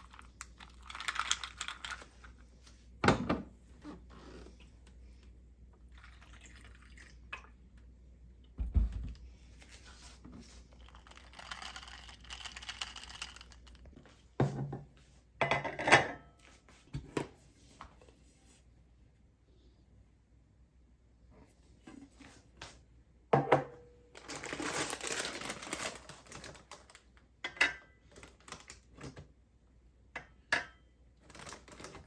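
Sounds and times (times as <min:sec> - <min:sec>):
liquid pouring: 0:05.9 - 0:07.6.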